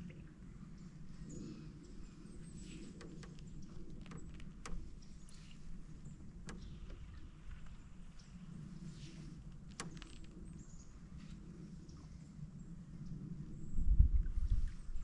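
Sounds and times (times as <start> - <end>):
steady low rumble: 0.0 - 15.0
creaky canoe hull: 1.0 - 11.6
paddle knocking and clicking: 1.9 - 11.2.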